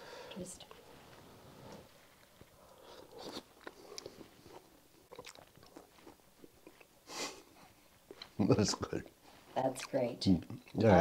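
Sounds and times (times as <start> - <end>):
man chewing: 1.6 - 8.4.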